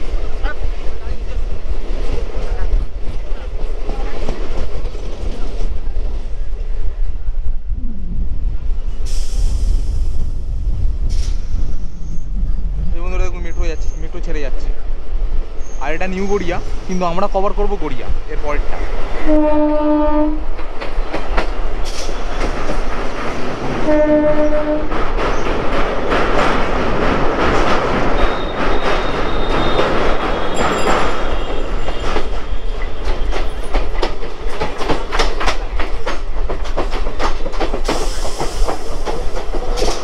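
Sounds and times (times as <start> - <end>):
train wheels clattering on track: 0.0 - 7.2, 8.8 - 12.2, 15.5 - 40.0
train horn: 19.2 - 20.5, 23.8 - 25.0.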